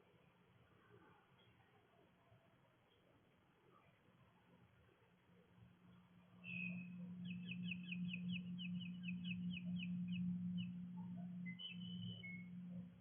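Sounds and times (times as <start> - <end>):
steady low hum: 5.8 - 13.0
songbird whistling: 11.4 - 12.5.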